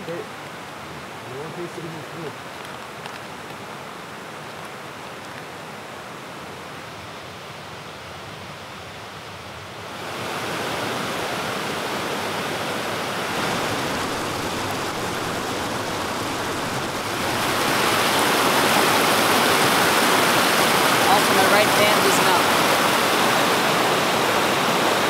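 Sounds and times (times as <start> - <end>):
rain falling steadily: 0.0 - 25.0.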